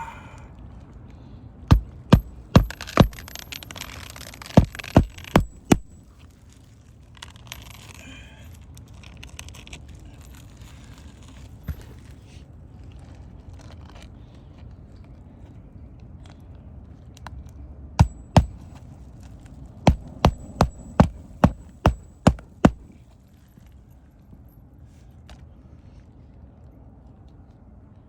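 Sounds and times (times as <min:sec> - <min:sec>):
hammer striking roofing nails: 0:01.7 - 0:06.0, 0:18.0 - 0:18.7, 0:19.9 - 0:23.0.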